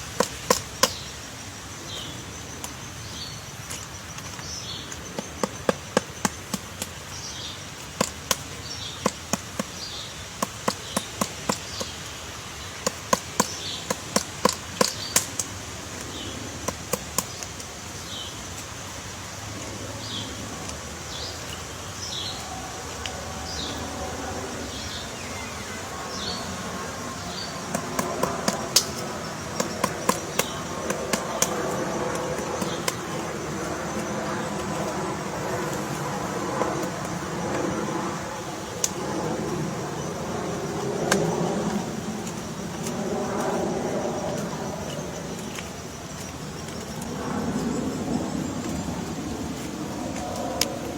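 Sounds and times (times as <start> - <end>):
woodpecker tapping on wood: 0.0 - 1.1, 3.7 - 15.5, 27.5 - 34.2.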